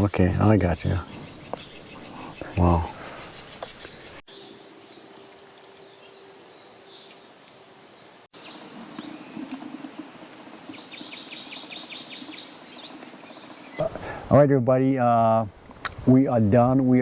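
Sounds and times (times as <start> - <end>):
birds chirping: 0.0 - 14.4
bird trill: 0.7 - 5.1, 10.7 - 13.9.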